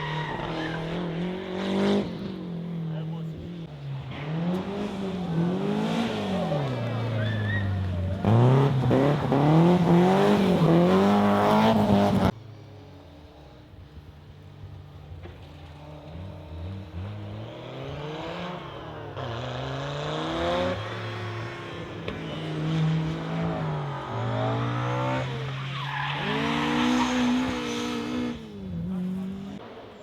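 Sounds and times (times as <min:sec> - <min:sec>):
rally car engine revving: 0:00.0 - 0:12.4, 0:15.2 - 0:30.0.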